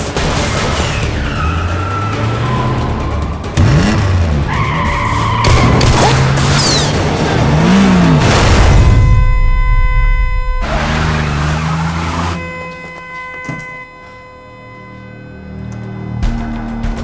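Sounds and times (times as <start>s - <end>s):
car engines revving: 0.0s - 12.8s
film score music: 0.0s - 17.0s.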